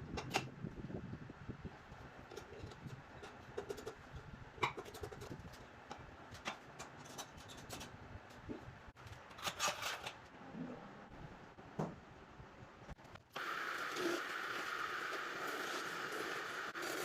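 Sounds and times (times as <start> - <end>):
clicks and knocks of handled objects: 4.6 - 10.3.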